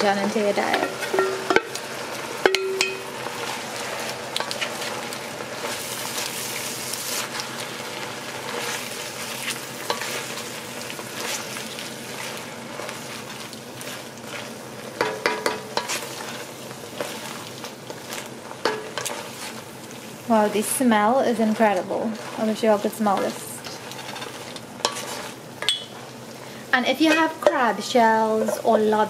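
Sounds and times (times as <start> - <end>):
shells sizzling in oil: 0.0 - 29.0
wooden spoon scraping pot: 21.5 - 26.1.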